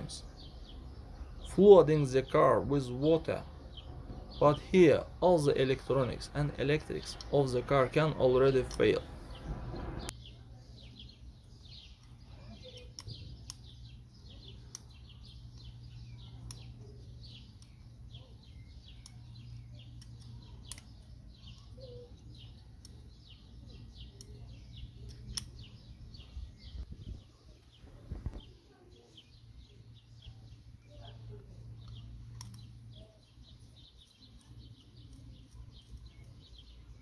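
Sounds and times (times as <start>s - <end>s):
small birds chirping: 0.0s - 37.0s
light clicks: 18.8s - 21.8s, 25.0s - 25.7s, 31.8s - 32.8s.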